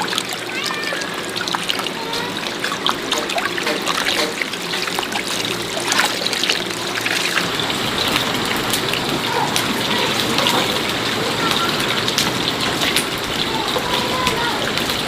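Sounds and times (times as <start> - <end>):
water trickling and splashing: 0.0 - 15.0.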